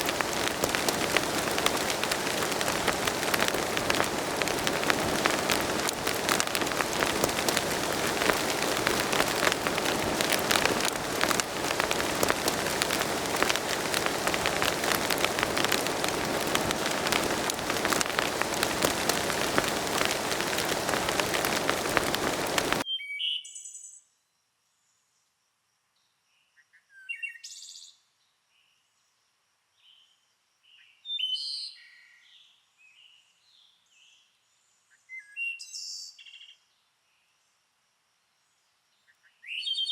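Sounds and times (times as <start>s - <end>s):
rain pattering: 0.0s - 22.8s.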